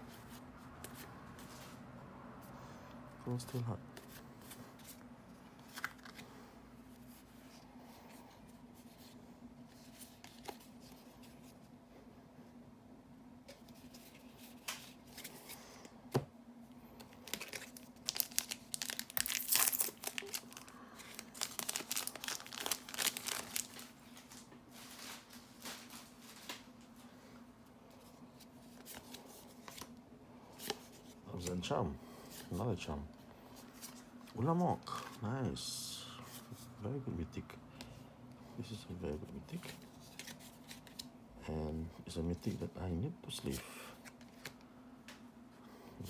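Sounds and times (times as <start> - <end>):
faint low hum: 0.0 - 46.0
foil pack tearing and crinkling: 17.3 - 24.4.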